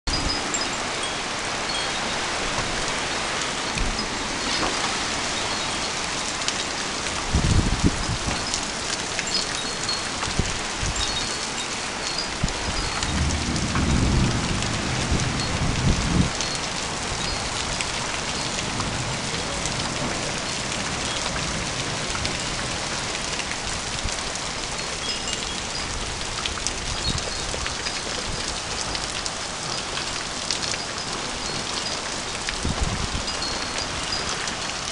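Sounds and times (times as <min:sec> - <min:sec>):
heavy rain pouring: 0:00.0 - 0:34.9
low thunder rumbles: 0:13.0 - 0:16.5.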